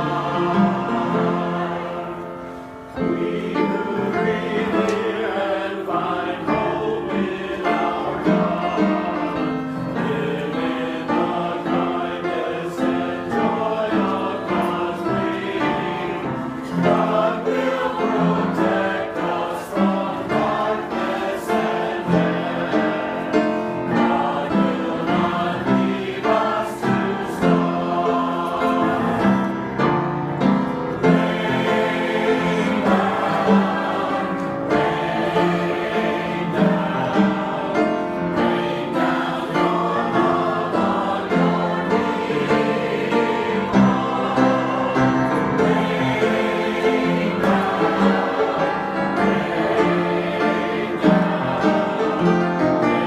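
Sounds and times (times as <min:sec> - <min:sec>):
choir singing a hymn: 0:00.0 - 0:53.0.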